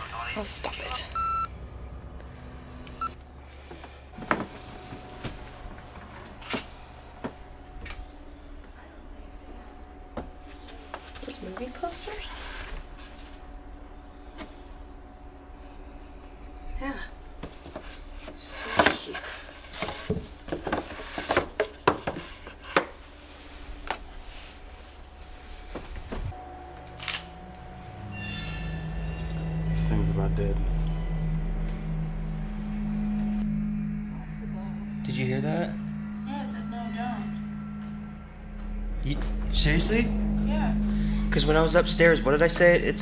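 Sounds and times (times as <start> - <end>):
low steady hum: 0.0 - 43.0
short electronic beep: 1.1 - 1.5.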